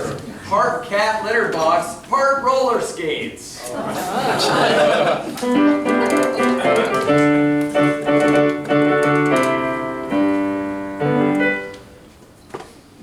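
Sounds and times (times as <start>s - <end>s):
piano chords: 5.2s - 12.2s.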